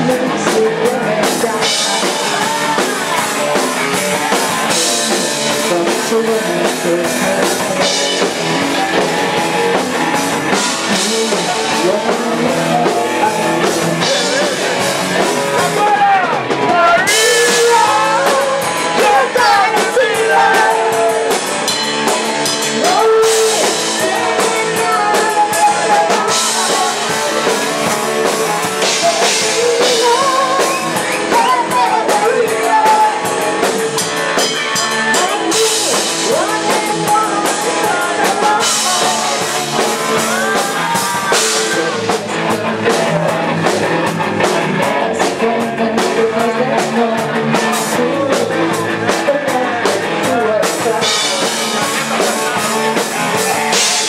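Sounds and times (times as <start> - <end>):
drum kit: 0.0 - 54.0
electric guitar: 0.0 - 54.0
lead singer singing: 0.0 - 54.0
live rock band playing: 0.0 - 54.0.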